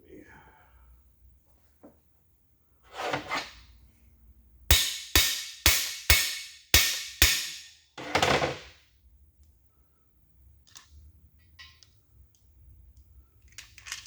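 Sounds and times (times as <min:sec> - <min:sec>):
ringing hammer blows on metal: 0:04.7 - 0:08.1.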